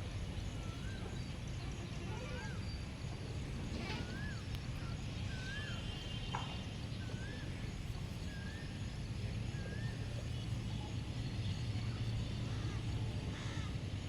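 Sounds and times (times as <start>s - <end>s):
bird whistling call: 3.8s - 10.9s.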